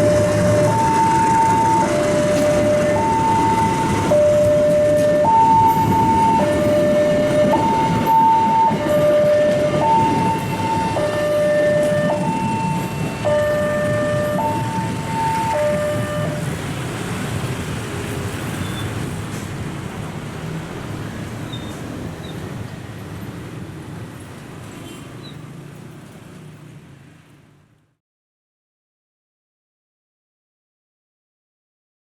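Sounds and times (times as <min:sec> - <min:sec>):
train rumbling: 0:00.0 - 0:24.7.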